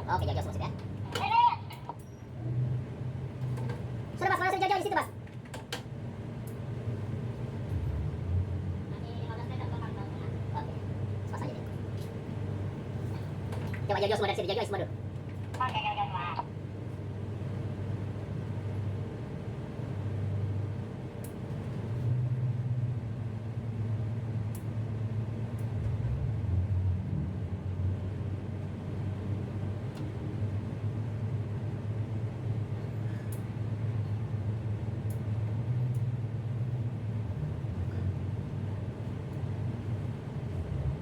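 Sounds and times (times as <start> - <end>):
boat diesel engines droning: 7.6 - 11.9.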